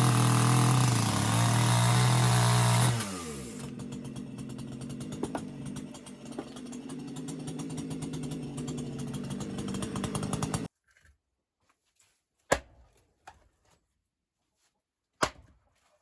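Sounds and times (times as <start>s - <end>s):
small engine running: 0.0s - 10.7s.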